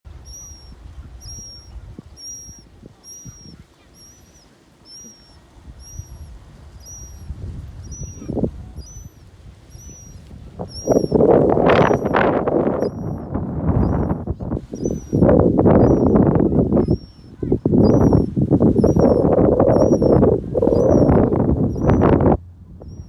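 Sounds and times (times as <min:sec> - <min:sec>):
low rumble: 0:06.4 - 0:23.0.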